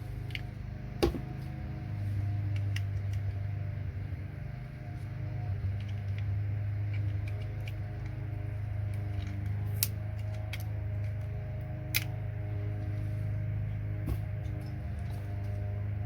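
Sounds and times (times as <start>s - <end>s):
low hum: 0.0s - 16.0s
side cutters snipping plastic: 9.0s - 11.2s.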